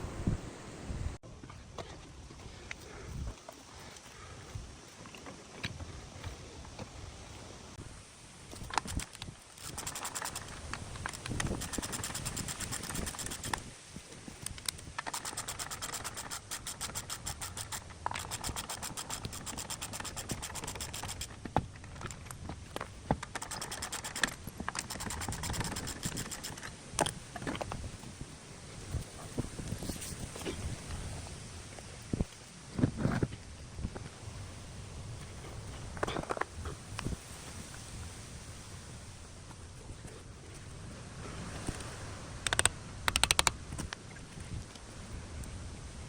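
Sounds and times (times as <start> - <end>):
sharp clicks: 8.6 - 13.7, 14.4 - 22.4, 23.2 - 27.2, 42.4 - 44.0.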